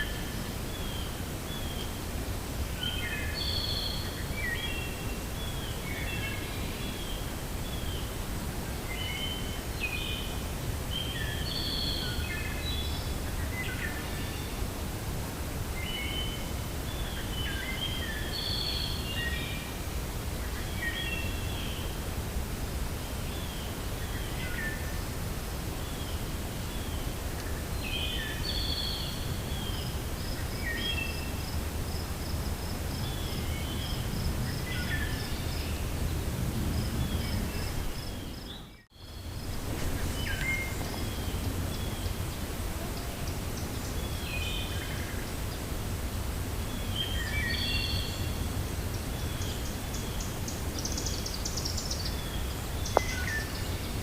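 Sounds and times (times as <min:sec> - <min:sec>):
wind blowing through forest: 0:00.0 - 0:54.0
birds chirping: 0:32.3 - 0:45.8, 0:46.6 - 0:54.0.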